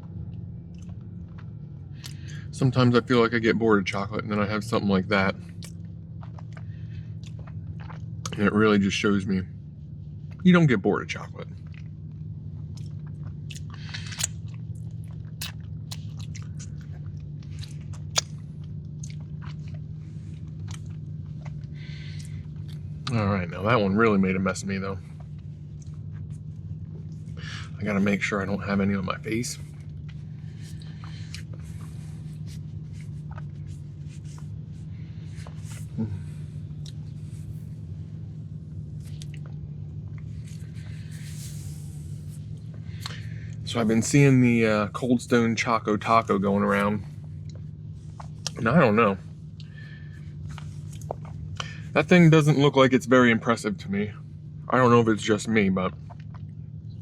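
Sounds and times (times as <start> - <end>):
chewing and wet mouth clicks: 0.0 - 2.5, 5.5 - 8.4, 11.6 - 23.2, 25.2 - 27.4, 29.6 - 37.7, 38.4 - 41.6, 42.7 - 44.2, 47.2 - 48.6, 49.4 - 51.8, 55.9 - 57.0
steady low hum: 0.0 - 57.0
wet mouth clicks: 12.6 - 19.8.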